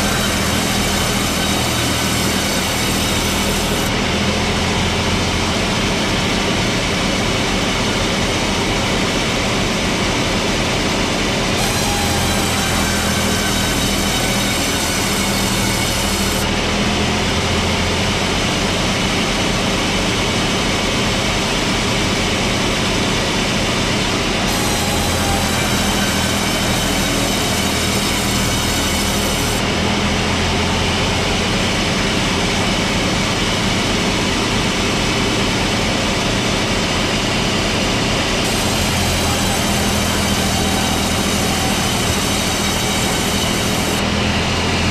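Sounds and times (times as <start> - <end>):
high whining tones: 0.0 - 7.0, 11.4 - 16.6, 23.7 - 44.8
sawmill machinery running: 0.0 - 44.9.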